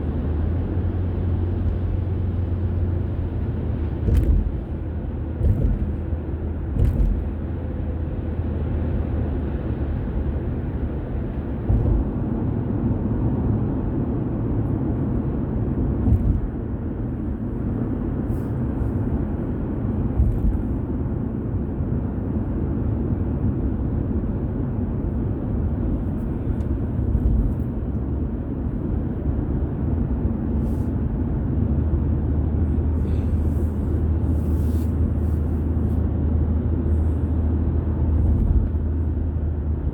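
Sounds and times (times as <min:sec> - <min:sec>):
car road and engine rumble: 0:00.0 - 0:39.9
short knocks or bumps: 0:04.0 - 0:07.4, 0:11.6 - 0:12.3, 0:16.0 - 0:16.6.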